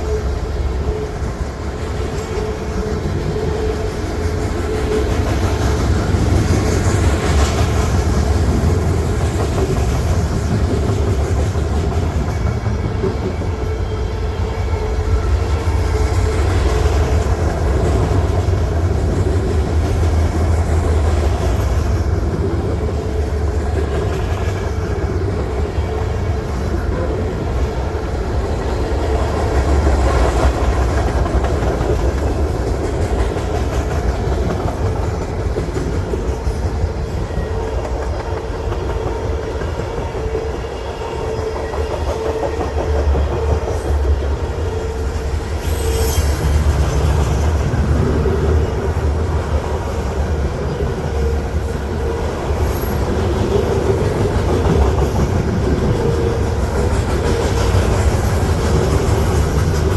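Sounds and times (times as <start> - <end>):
freight train rumbling: 0.0 - 59.9
wheels clicking over rail joints: 15.3 - 44.4
high squeal: 44.9 - 46.8.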